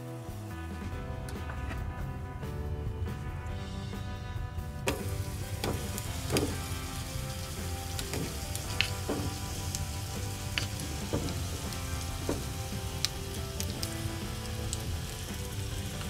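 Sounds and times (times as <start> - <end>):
low hum: 0.1 - 15.5
mushrooms sizzling in a pan: 4.9 - 16.0.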